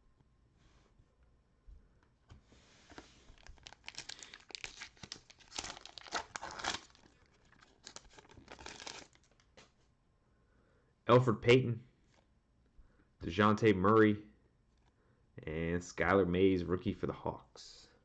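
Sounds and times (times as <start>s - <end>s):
plastic wrapper tearing and crinkling: 3.3s - 9.5s.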